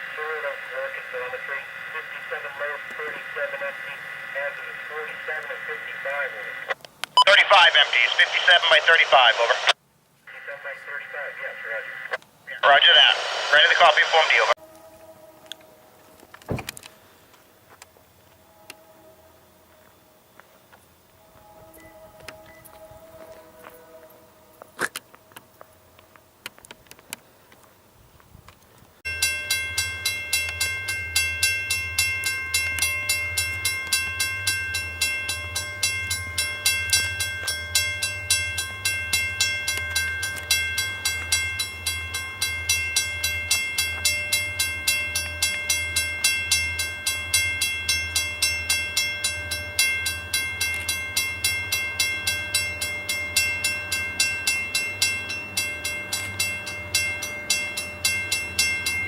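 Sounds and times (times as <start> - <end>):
crossing bell ringing: 29.1 - 59.0.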